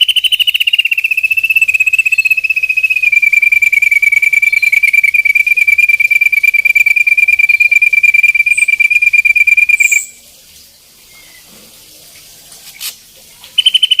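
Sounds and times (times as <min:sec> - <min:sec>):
bird trilling: 0:00.0 - 0:10.2, 0:13.6 - 0:14.0
higher-pitched bird trill: 0:00.0 - 0:10.2, 0:13.6 - 0:14.0.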